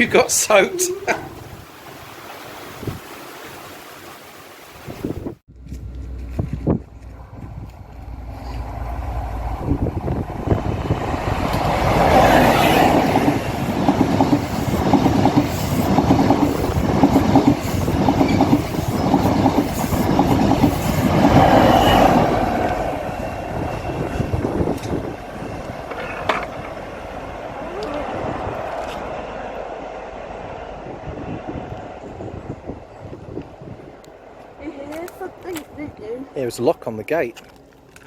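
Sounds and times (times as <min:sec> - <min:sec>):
train passing: 0:05.5 - 0:38.0
wheels clattering over rail joints: 0:22.4 - 0:27.3.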